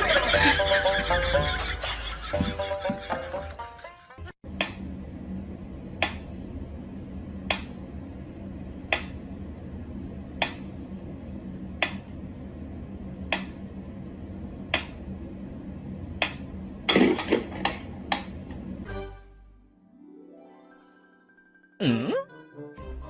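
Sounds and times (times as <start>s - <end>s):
steady low hum: 4.4s - 18.9s.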